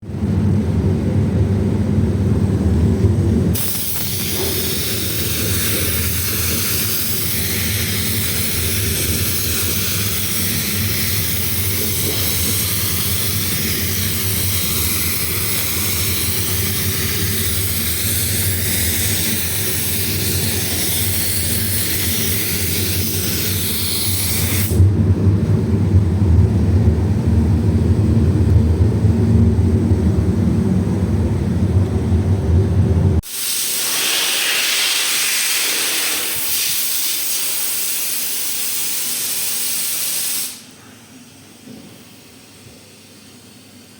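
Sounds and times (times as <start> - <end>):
low machine hum: 0.0 - 33.2
spray gun hissing: 3.6 - 24.8, 33.2 - 40.7.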